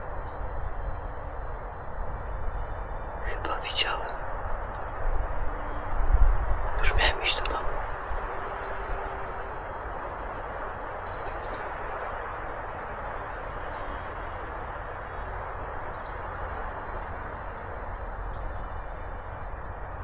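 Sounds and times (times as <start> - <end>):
rushing forest background: 0.0 - 20.0
sharp clicks: 11.0 - 11.7.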